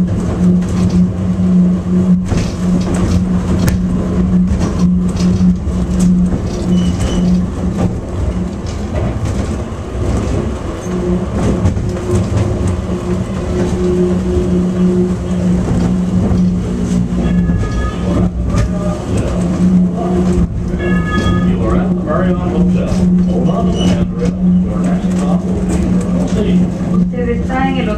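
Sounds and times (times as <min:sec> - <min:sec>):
low rolling rumble: 0:00.0 - 0:27.9
train motor hum: 0:00.0 - 0:27.9.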